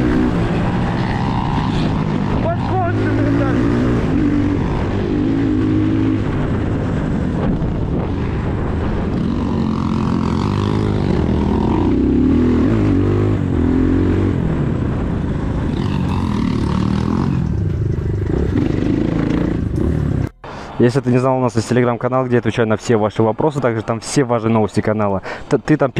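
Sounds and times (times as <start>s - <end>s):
motorcycle engine revving: 0.0s - 20.4s
wind and road noise: 0.0s - 25.9s.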